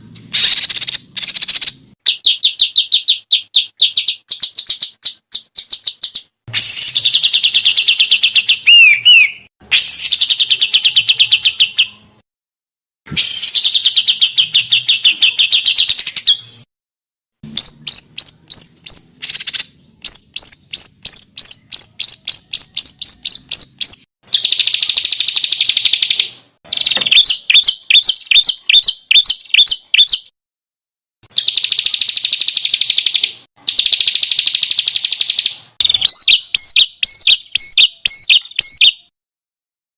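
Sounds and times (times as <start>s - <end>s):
songbird trills: 17.5s - 30.3s, 31.4s - 39.1s.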